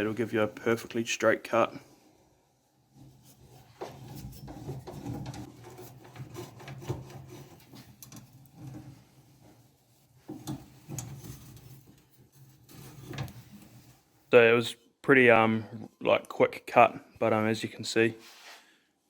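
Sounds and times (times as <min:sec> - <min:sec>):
pipe cutter scraping metal pipe: 0:03.1 - 0:09.0.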